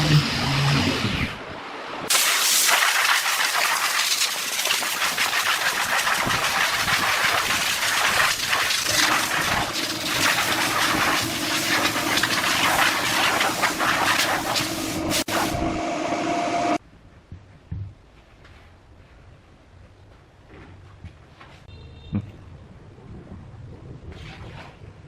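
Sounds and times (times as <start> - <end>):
woodworking tool hissing: 8.4 - 15.8
low hum: 14.5 - 18.3.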